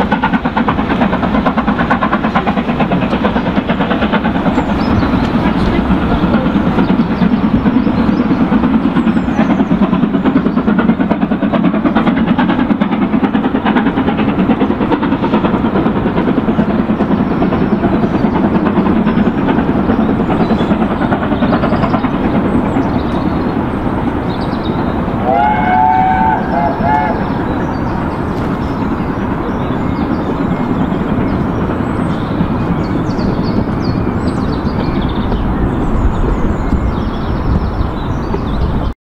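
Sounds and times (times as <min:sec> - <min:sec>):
train passing with dense rumble: 0:00.0 - 0:39.0.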